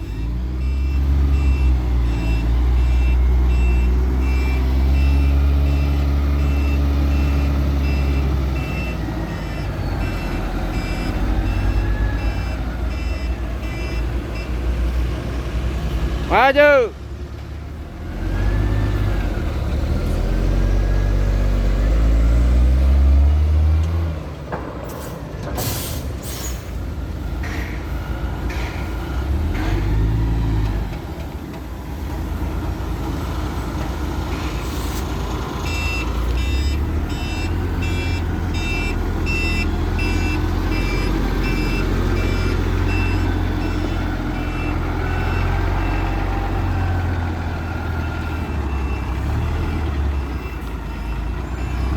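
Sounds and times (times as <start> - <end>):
reversing alarm beeping: 0.0 - 14.7, 35.6 - 51.9
truck diesel engine: 0.0 - 51.9
air brake hisses: 25.6 - 26.8.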